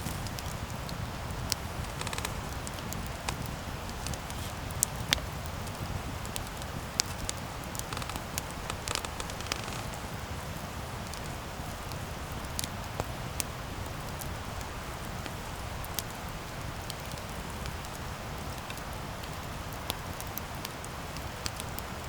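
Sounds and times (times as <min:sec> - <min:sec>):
campfire hissing: 0:00.0 - 0:22.0
fire crackles and pops: 0:00.0 - 0:22.0.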